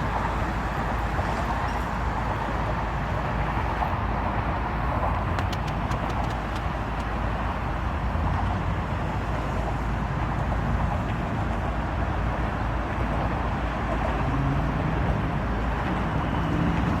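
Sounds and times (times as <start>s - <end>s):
rumbling vehicle noise: 0.0s - 17.0s.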